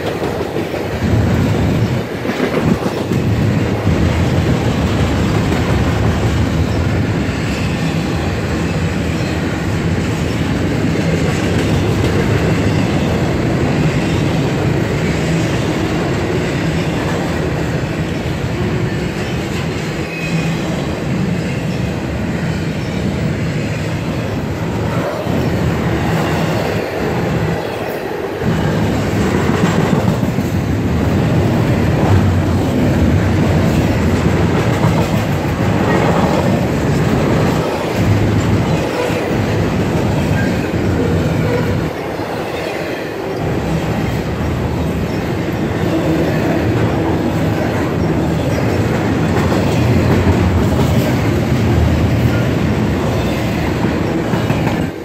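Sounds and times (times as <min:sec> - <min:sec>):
freight train wheels rumbling on rails: 0:00.0 - 0:55.0.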